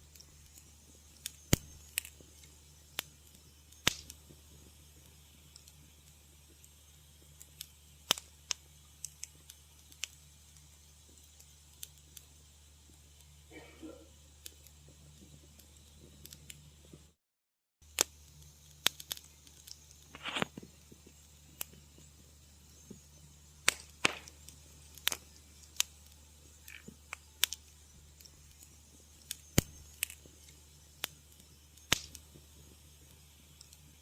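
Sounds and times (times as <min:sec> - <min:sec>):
low steady hum: 0:00.0 - 0:17.2
wood fire crackling: 0:00.0 - 0:17.2, 0:17.8 - 0:34.0
short hiss: 0:18.8 - 0:20.8.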